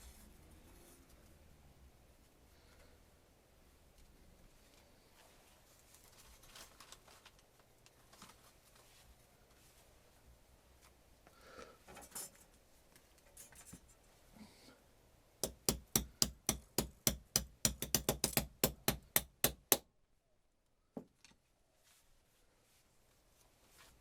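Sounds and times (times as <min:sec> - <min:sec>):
knock: 0:15.4 - 0:19.8
rapid sharp taps: 0:15.4 - 0:19.8.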